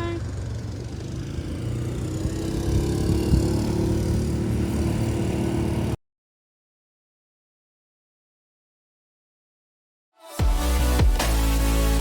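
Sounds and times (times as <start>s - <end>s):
engine rumbling: 0.0s - 6.0s.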